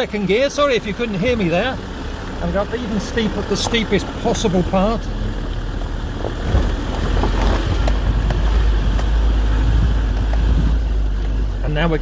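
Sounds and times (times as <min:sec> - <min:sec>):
engine droning uphill: 0:00.0 - 0:12.0
sharp knocks over rough ground: 0:05.8 - 0:11.4.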